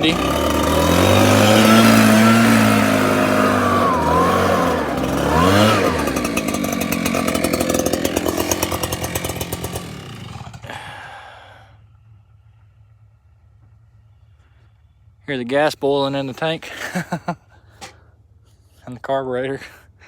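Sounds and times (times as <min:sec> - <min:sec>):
chainsaw running at high revs: 0:00.0 - 0:11.6.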